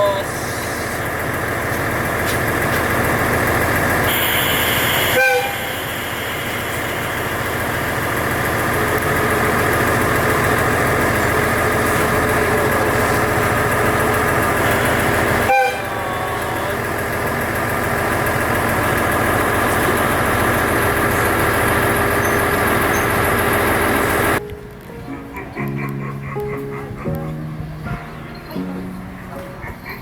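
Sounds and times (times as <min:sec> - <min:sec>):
train running: 0:00.0 - 0:30.0
short train horn toot: 0:04.0 - 0:07.0, 0:14.8 - 0:16.4.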